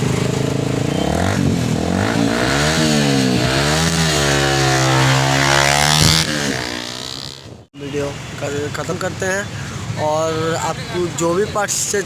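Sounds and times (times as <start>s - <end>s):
motorcycle engine revving: 0.0s - 7.7s.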